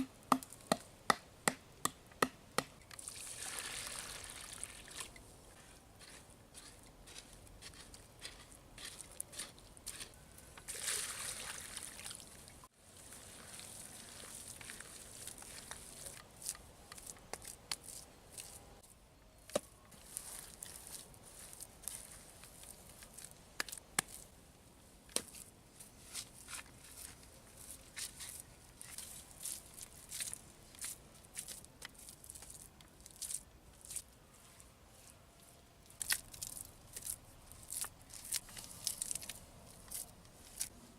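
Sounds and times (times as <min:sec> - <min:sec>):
wet clay squelching: 0:13.0 - 0:18.6.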